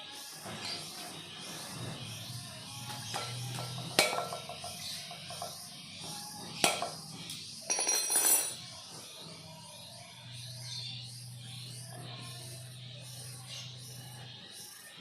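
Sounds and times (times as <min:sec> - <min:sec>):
background music: 0:00.0 - 0:15.0
metallic clinks: 0:06.8 - 0:08.7.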